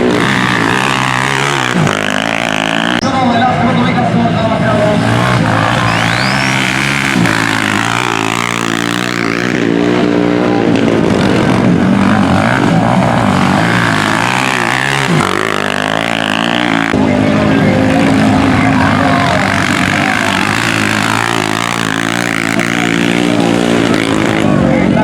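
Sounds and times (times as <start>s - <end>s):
motorcycles racing: 0.0s - 25.0s.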